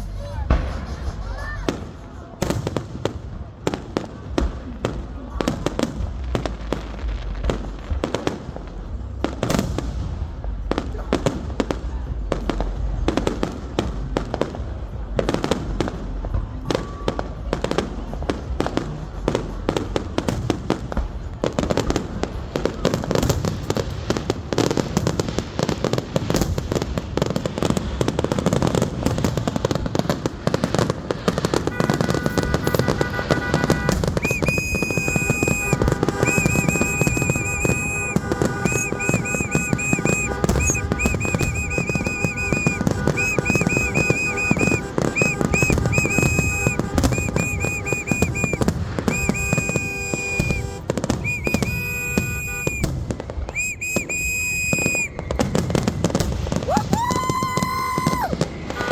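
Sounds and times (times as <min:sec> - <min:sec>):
fireworks crackling and banging: 0:00.0 - 0:58.9
whistling fireworks: 0:00.0 - 0:58.9.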